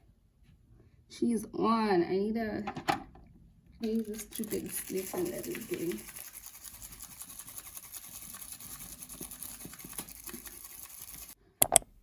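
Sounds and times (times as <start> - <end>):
scratching and rustling: 3.8 - 11.4.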